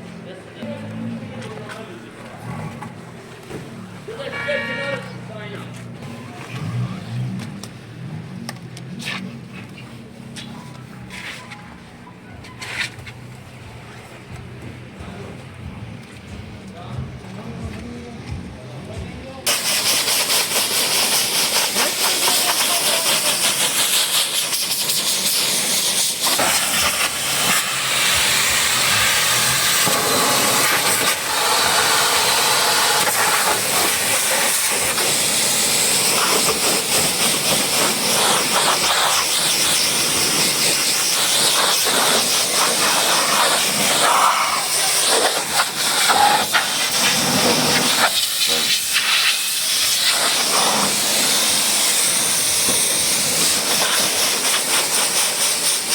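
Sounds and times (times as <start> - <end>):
pressure washer spraying water: 19.5 - 55.9.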